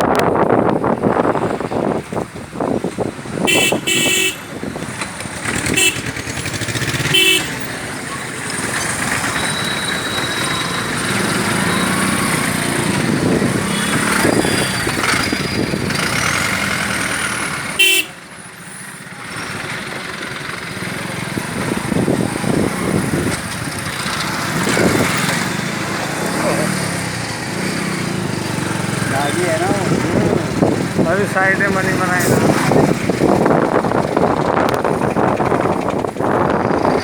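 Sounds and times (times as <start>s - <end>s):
motorcycle and truck engines: 0.0s - 37.0s
short horn honks: 3.5s - 4.4s, 5.7s - 6.1s, 7.0s - 7.6s, 17.8s - 18.2s.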